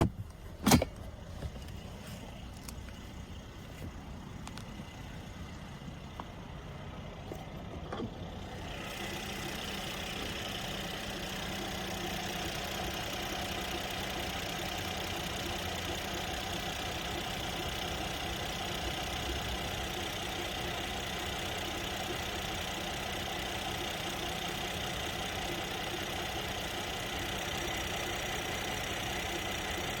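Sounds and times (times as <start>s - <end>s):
car running noise: 0.0s - 30.0s.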